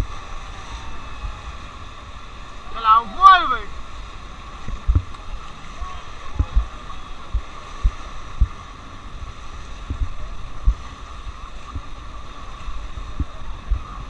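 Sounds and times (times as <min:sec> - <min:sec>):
rushing river water: 0:00.0 - 0:14.0
thumps on microphone: 0:06.4 - 0:06.7.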